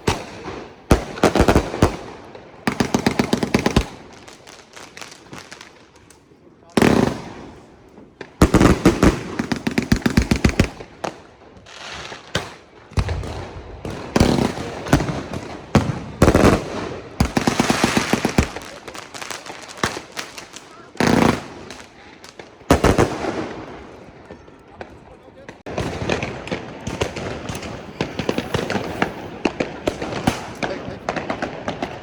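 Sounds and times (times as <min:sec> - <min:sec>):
firecrackers rapid bangs: 0:00.0 - 0:06.0, 0:06.8 - 0:32.0
single loud firework bangs: 0:25.5 - 0:32.0.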